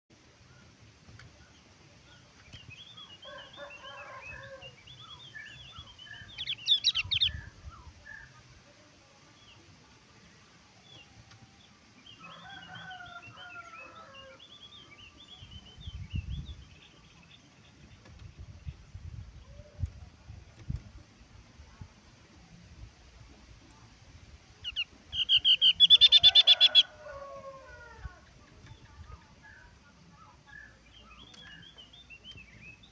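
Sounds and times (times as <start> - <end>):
bird chattering calls: 6.4 - 7.4, 24.6 - 26.8.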